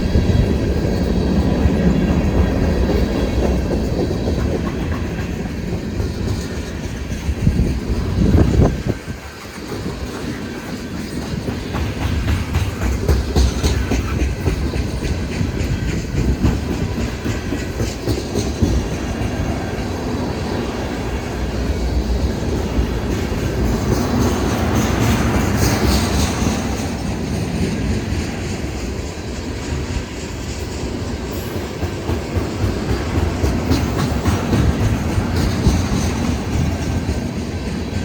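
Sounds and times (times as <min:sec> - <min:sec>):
low train rumble: 0:00.0 - 0:38.0
train wheels clacking on rails: 0:00.0 - 0:38.0.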